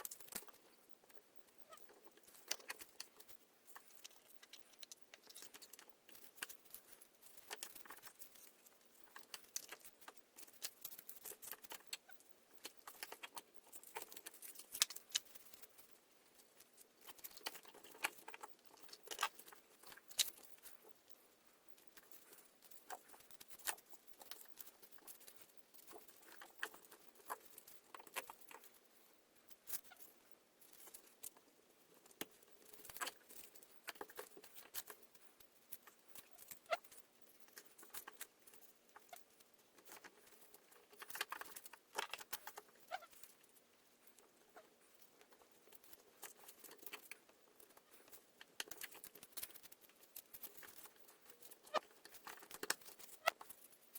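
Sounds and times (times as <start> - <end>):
small parts clicking and tapping: 0.0 - 53.9.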